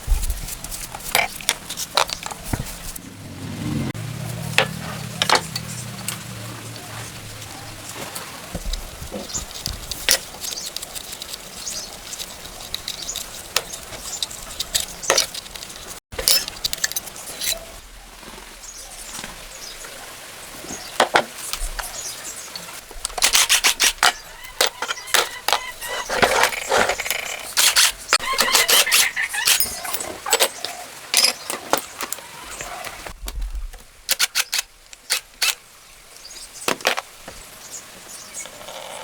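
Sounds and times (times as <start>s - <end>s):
hand tools on metal: 4.5s - 7.2s, 8.6s - 17.8s, 23.0s - 33.0s
quick clicks: 23.1s - 29.8s, 34.1s - 35.6s.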